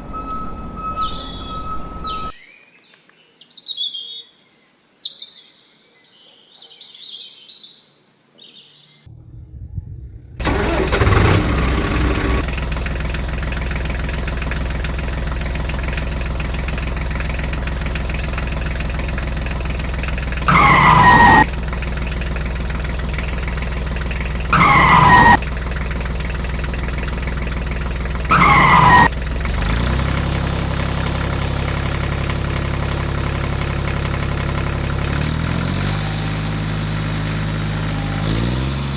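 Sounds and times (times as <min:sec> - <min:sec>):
short loud falling tones: 0:00.0 - 0:02.4
birds chirping: 0:00.0 - 0:02.5
toy tractor engine sound effects: 0:10.4 - 0:12.4, 0:20.5 - 0:21.5, 0:24.5 - 0:25.4, 0:28.3 - 0:29.1.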